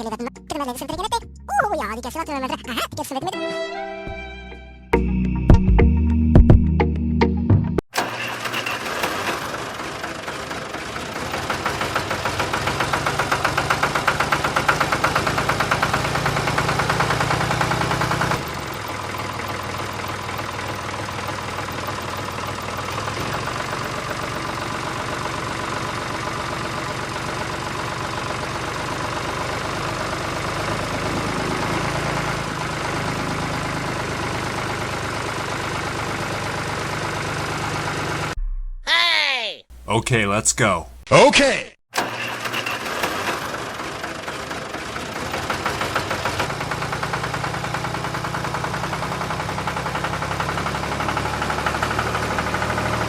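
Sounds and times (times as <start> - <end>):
small motor running with fast rattle: 8.0 - 26.8, 42.0 - 53.0.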